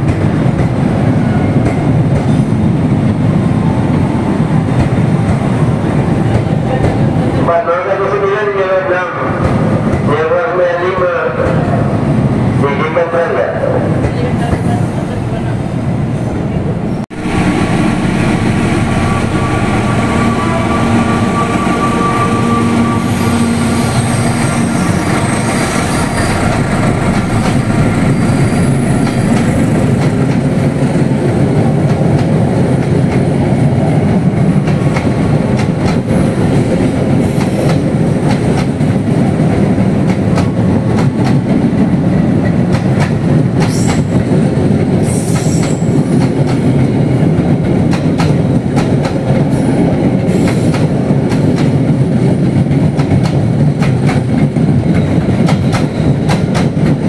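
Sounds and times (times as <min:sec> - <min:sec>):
train wheels rumbling on rail: 0:00.0 - 0:57.0
high-pitched bursts: 0:17.3 - 0:29.9.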